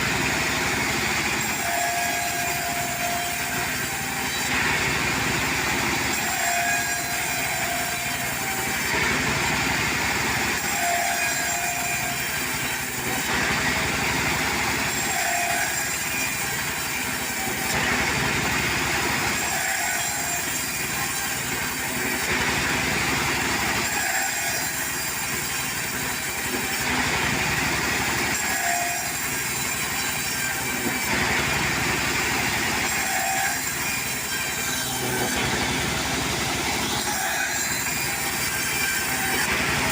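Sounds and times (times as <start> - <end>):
saw cutting wood: 0.0 - 39.9
sawmill engine running: 0.0 - 39.9.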